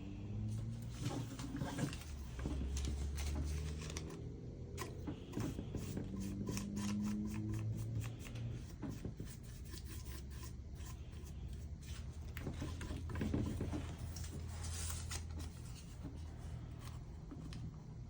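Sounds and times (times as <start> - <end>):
soft rubbing on paper: 4.8 - 17.6.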